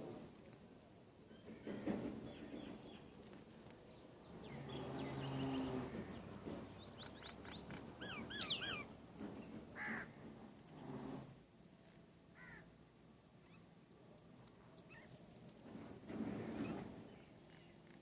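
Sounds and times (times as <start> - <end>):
small birds chirping: 2.2 - 9.6, 14.8 - 15.6.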